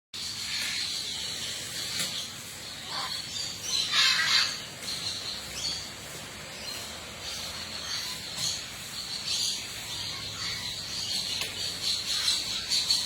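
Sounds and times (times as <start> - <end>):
birds chirping and calling: 0.2 - 13.0
steady background hiss: 0.2 - 13.0.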